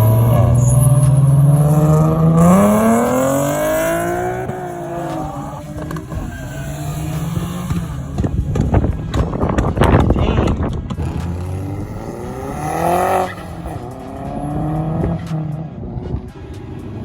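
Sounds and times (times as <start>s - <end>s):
car engine accelerating: 0.0s - 17.0s
wind buffeting microphone: 3.9s - 14.0s.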